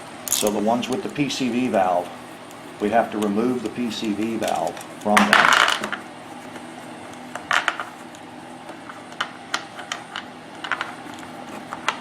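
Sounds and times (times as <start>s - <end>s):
small tools clicking and tapping: 0.3s - 1.0s.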